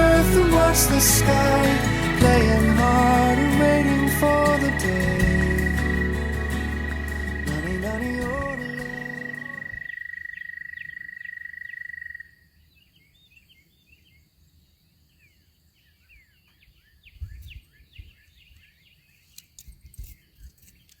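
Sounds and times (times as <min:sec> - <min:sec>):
low thumps: 0:00.0 - 0:09.0
high pulsing trill: 0:00.0 - 0:09.8
small birds chirping: 0:00.0 - 0:21.0.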